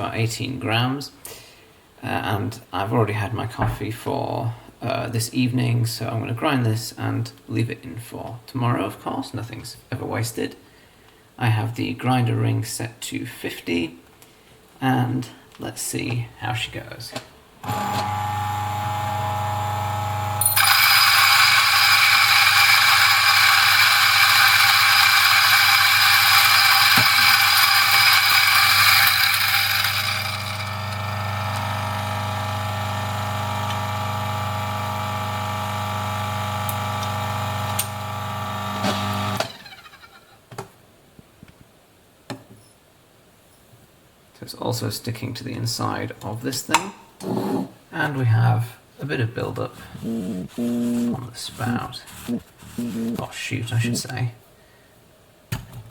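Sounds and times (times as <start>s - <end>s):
coffee grinder motor running: 17.7s - 40.0s, 50.0s - 51.2s, 52.1s - 53.2s
coffee beans grinding crunch: 20.4s - 33.8s, 50.0s - 53.2s.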